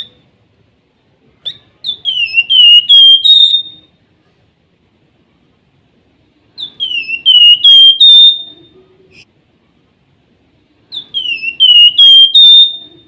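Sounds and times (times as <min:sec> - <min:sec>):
bird singing whistled notes: 0:01.4 - 0:03.9, 0:06.6 - 0:08.8, 0:10.9 - 0:13.0.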